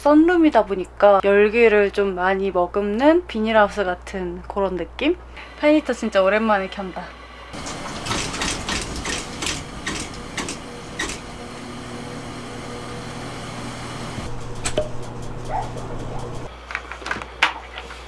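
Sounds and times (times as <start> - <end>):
fan heater humming: 0.0 - 18.0
sharp clicks: 8.1 - 11.3.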